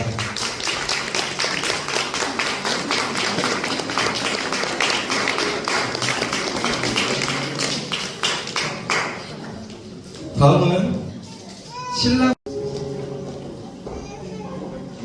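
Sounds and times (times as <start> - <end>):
crowd applauding: 0.0 - 9.6
soft background music: 8.9 - 15.0.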